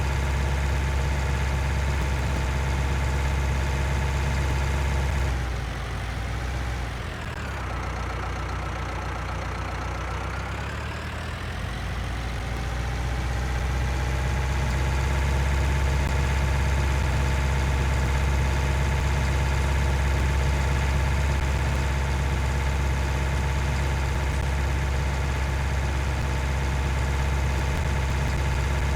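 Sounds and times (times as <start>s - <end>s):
tractor engine running: 0.0s - 28.9s.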